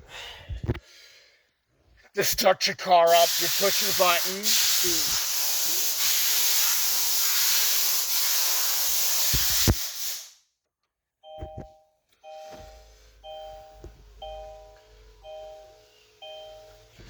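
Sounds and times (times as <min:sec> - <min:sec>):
loud steady hiss: 0:03.1 - 0:10.3
car warning chime: 0:11.2 - 0:17.0.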